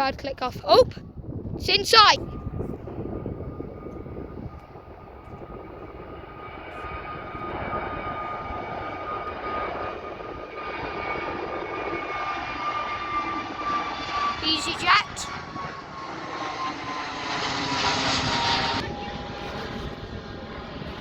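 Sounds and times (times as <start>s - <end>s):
jet engines whining: 0.3s - 21.0s.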